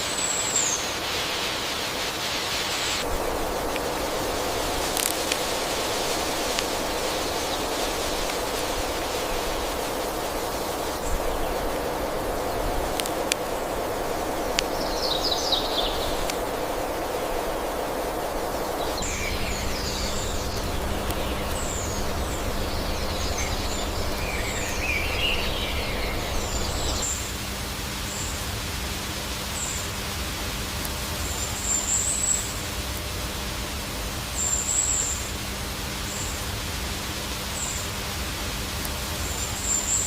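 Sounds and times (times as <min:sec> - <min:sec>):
outdoor background noise: 0:00.0 - 0:40.0
low steady hum: 0:03.0 - 0:40.0
high bird chirps: 0:18.8 - 0:27.1.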